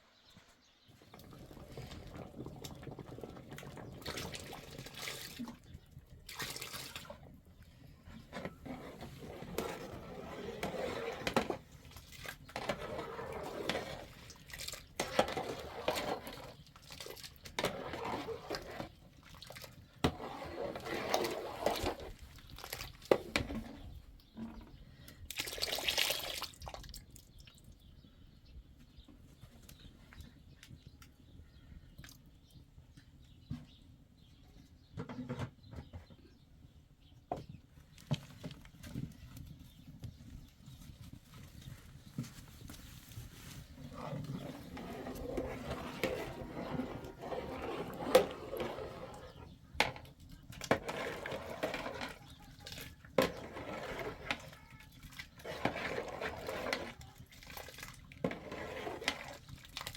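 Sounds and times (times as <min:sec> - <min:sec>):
water splashing and pouring: 0:01.0 - 0:05.6, 0:06.2 - 0:07.2, 0:11.9 - 0:23.5, 0:25.3 - 0:27.1, 0:50.7 - 0:59.9.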